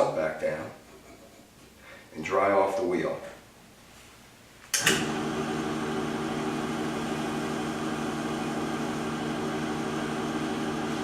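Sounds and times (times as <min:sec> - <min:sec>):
electric motor humming: 0:04.8 - 0:11.0.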